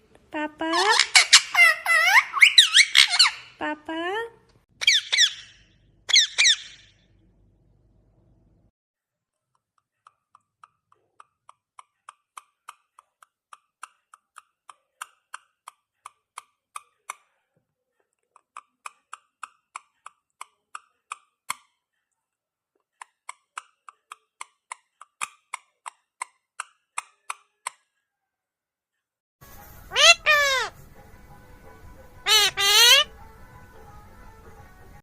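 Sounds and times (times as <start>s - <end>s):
parrot clicking calls: 10.1s - 17.3s, 18.3s - 21.7s, 29.9s - 30.7s.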